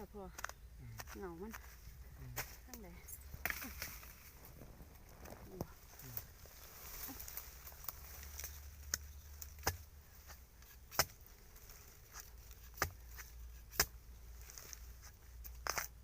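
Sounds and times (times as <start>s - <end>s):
blade chopping bamboo: 8.9s - 11.2s, 12.1s - 14.0s.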